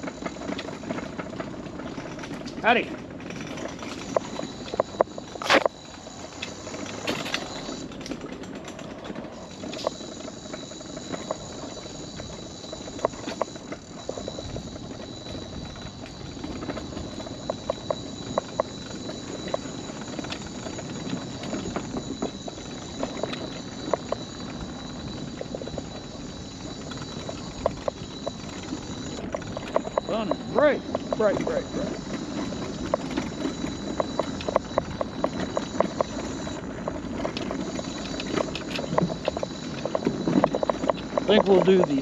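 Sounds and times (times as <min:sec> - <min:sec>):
wheels rumbling on wooden boardwalk: 0:00.0 - 0:42.0
steady high whine: 0:03.6 - 0:08.2, 0:09.2 - 0:42.0.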